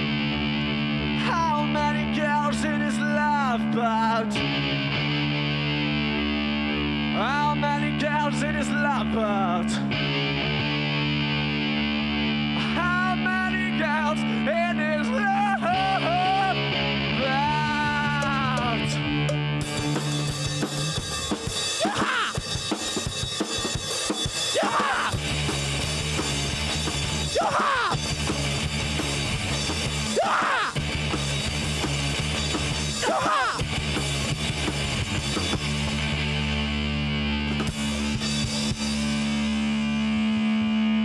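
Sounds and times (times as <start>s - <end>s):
rock music with drums and bass: 0.0s - 41.0s.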